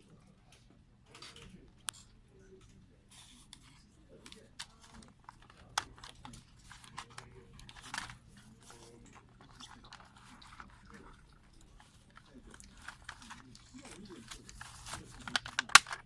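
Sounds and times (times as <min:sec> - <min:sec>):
packaging clicking and crinkling: 0:03.5 - 0:16.0.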